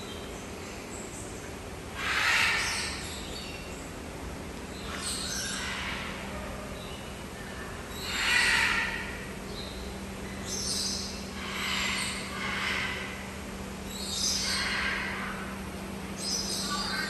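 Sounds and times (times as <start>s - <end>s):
birds squawking harshly: 2.0s - 3.1s, 4.9s - 6.3s, 7.9s - 9.3s, 10.5s - 15.6s, 16.2s - 17.0s.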